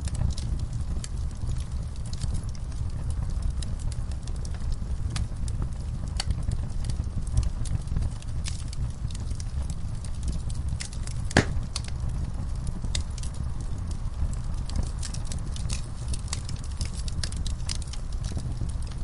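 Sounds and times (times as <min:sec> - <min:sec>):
fire crackling: 0:00.0 - 0:19.0
fire low rumble: 0:00.0 - 0:19.0
loud pop: 0:11.3 - 0:11.7.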